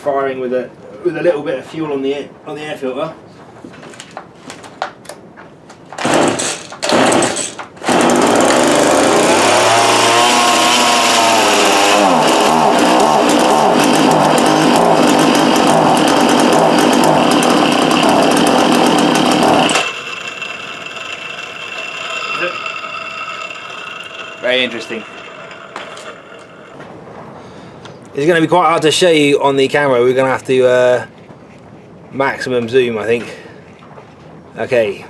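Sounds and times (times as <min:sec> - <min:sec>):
chainsaw engine pull-starting and running: 0:06.0 - 0:26.8.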